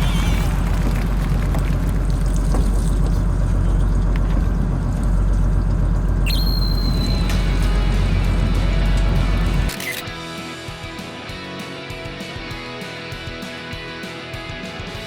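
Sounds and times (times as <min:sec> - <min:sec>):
boat engine rumbling: 0:00.0 - 0:09.8
water noise: 0:00.0 - 0:09.8
high electronic tone: 0:06.3 - 0:08.8.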